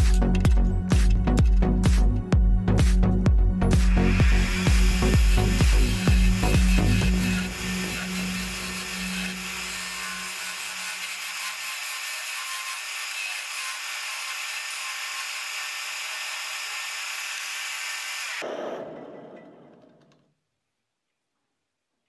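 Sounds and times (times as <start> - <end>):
low motor hum: 0.1 - 9.6
wood lathe rubbing hiss: 3.8 - 18.4.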